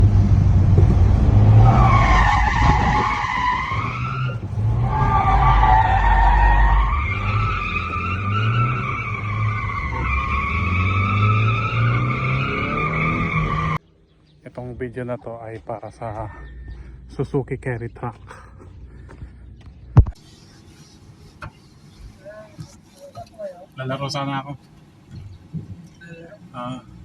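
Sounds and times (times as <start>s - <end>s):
tyre squeal: 1.5s - 13.8s.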